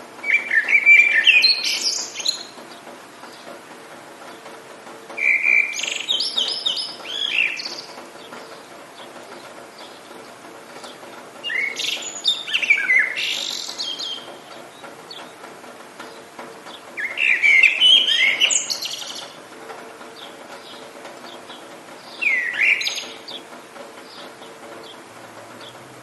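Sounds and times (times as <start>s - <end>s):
rain hissing: 0.0s - 26.0s
songbird twittering: 0.2s - 3.5s, 5.2s - 15.4s, 16.7s - 19.4s, 20.2s - 23.4s.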